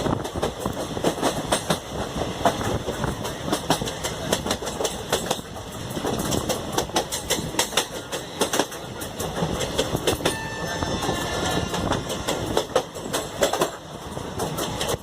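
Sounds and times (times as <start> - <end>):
train rumble: 0.0 - 15.0
train wheels clattering: 0.0 - 15.0.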